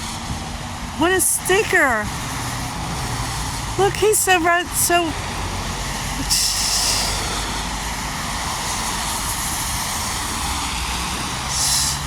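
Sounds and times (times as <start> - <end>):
rush of hiss: 5.2 - 12.0.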